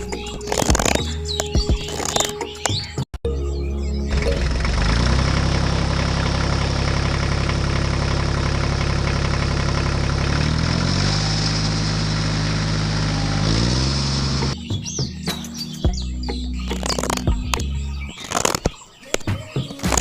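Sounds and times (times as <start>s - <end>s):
engine idling: 4.1s - 14.6s, 16.6s - 18.6s.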